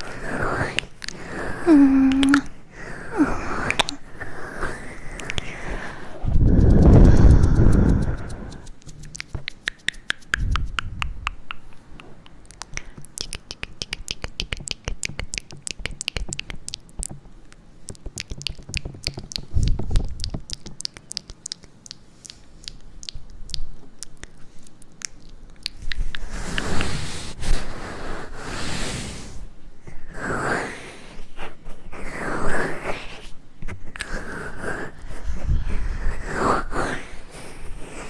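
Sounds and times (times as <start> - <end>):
quick sharp clicks and taps: 6.5 - 17.3, 17.9 - 23.6.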